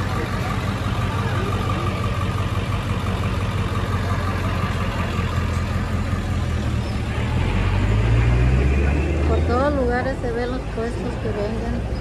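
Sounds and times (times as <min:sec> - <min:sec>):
street noise: 0:00.0 - 0:12.0
vehicle engine idling: 0:00.0 - 0:12.0.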